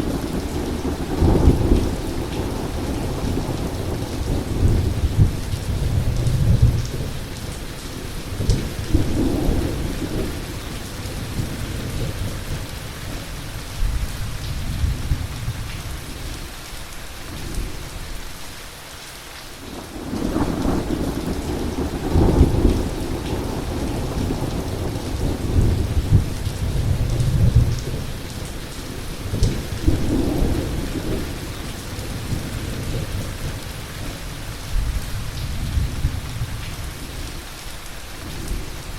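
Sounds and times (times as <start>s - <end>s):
rolling thunder: 0.0s - 7.6s, 19.8s - 37.2s
heavy rain: 0.0s - 38.9s.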